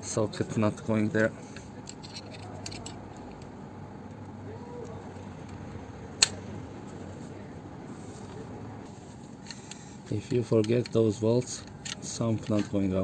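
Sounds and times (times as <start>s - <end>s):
steady low hum: 0.0s - 13.0s
hand tool clicking on metal: 1.2s - 3.5s.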